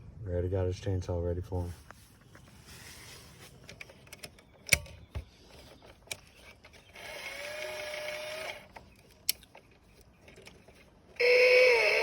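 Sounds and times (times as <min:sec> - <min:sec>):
small motor whining: 0:06.8 - 0:08.8, 0:11.1 - 0:12.0.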